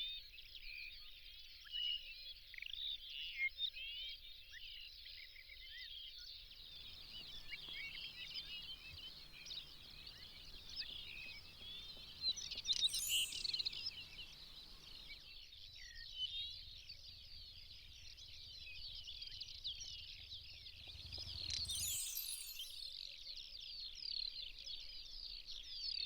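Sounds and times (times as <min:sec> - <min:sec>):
small birds chirping: 0:06.6 - 0:15.2, 0:20.8 - 0:22.9
high rattling bird call: 0:06.8 - 0:15.1.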